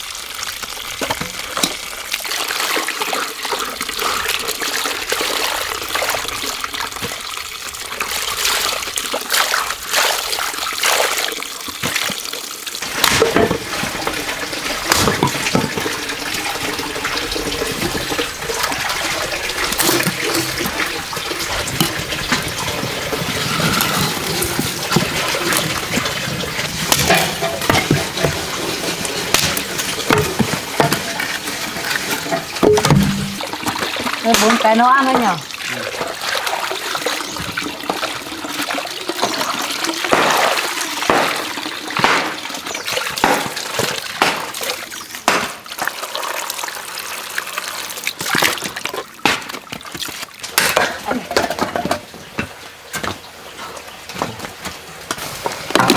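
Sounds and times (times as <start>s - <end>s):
running water splashing: 0.0s - 55.9s
knocks and clatters: 12.8s - 34.6s.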